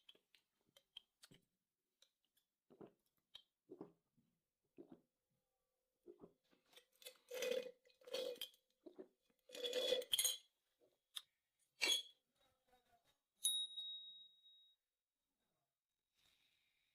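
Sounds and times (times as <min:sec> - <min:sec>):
sharp ringing clink: 0:13.4 - 0:14.7.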